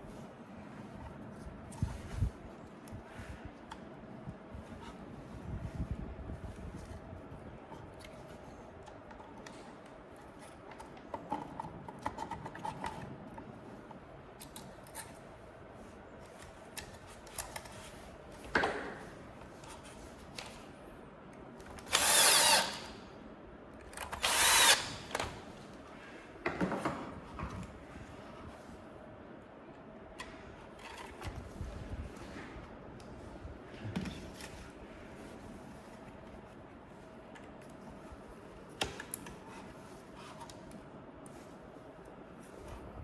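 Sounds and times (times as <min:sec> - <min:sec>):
electric screwdriver driving screws: 0:21.8 - 0:23.0, 0:24.0 - 0:25.2.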